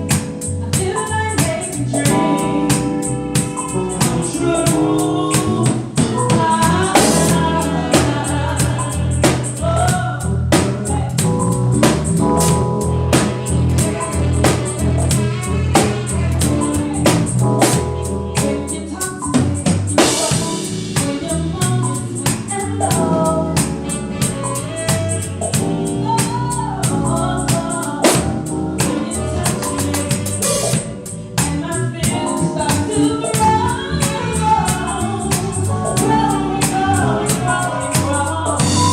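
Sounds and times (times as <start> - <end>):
person singing: 0.0 - 11.6, 13.2 - 38.9
band playing music: 0.0 - 38.9
drum kit steady beat: 0.0 - 38.9.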